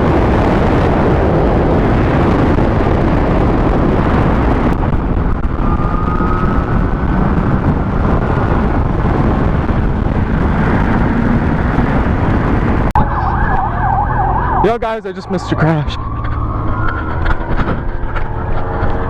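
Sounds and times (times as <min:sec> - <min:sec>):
motorcycle engine at speed: 0:00.0 - 0:14.6, 0:15.9 - 0:19.0
wind rushing on microphone: 0:00.0 - 0:19.0
wavering ambulance siren: 0:05.5 - 0:07.8, 0:12.9 - 0:19.0.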